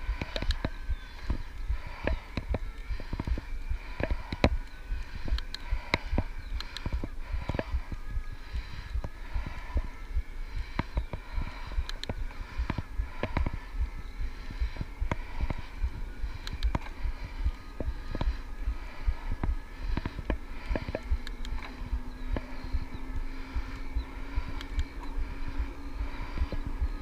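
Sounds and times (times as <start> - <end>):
electric bike ride rumble: 0.0 - 27.0.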